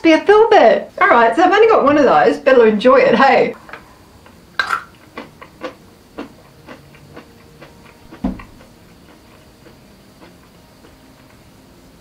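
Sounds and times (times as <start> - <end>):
person chewing crunchy nut: 4.2 - 11.4.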